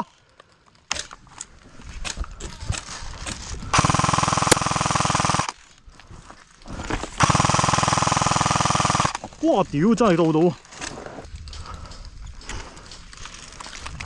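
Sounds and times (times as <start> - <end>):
airsoft gun full-auto burst: 3.7 - 5.6, 7.2 - 9.3.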